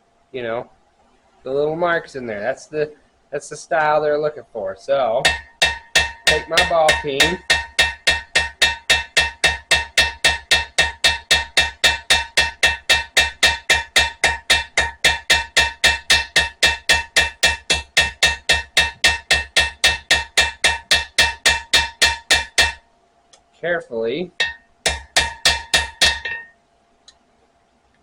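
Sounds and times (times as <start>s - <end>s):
hammer tapping steel blade: 5.3s - 22.8s, 24.4s - 26.6s.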